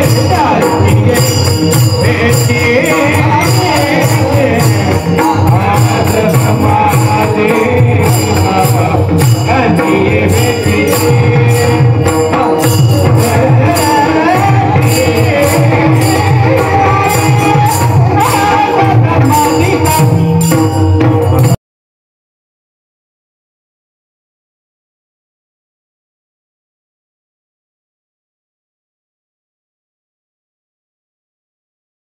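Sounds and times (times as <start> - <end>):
voices singing: 0.0 - 20.2
drum beat: 0.0 - 21.6
hand cymbals clashing: 0.0 - 21.6.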